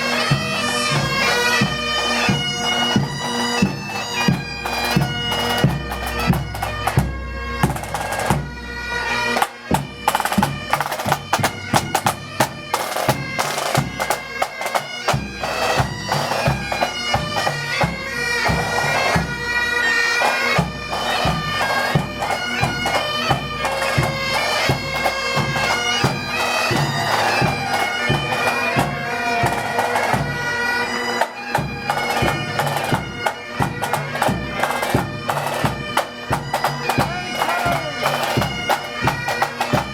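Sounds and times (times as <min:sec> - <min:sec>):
bagpipes playing a tune: 0:00.0 - 0:39.9.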